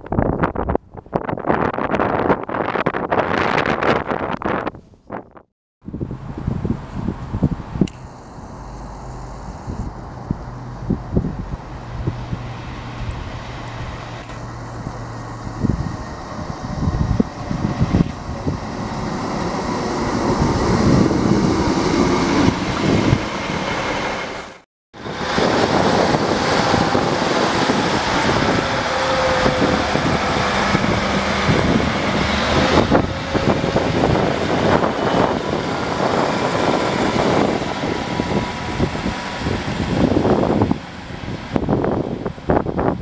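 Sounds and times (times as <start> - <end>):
train rumbling: 5.8 - 43.0
faint steady whining tones: 7.9 - 10.0.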